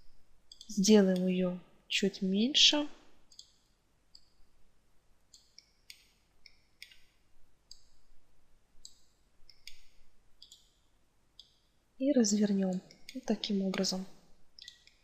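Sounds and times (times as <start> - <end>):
computer mouse clicking: 0.5 - 1.3, 3.3 - 4.4, 5.3 - 7.1, 7.7 - 8.0, 8.8 - 10.8, 12.5 - 14.0, 14.6 - 15.0.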